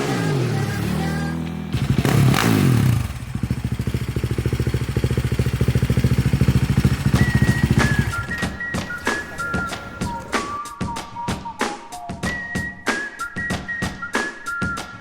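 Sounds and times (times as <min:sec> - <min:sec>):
engine revving and idling: 0:00.0 - 0:08.4.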